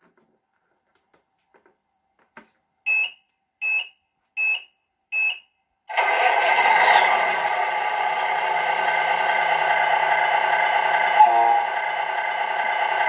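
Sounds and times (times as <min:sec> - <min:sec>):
loud steady sound: 0:05.9 - 0:13.0.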